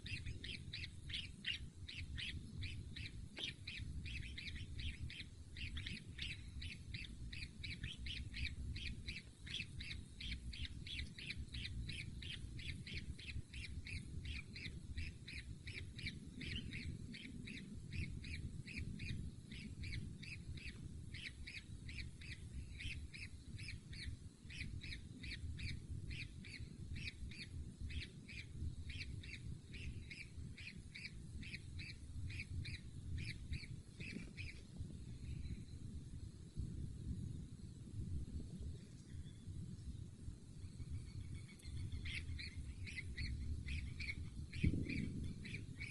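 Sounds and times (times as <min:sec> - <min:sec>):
low rumble: 0:00.0 - 0:24.1
bird chick rasping calls: 0:00.0 - 0:34.6.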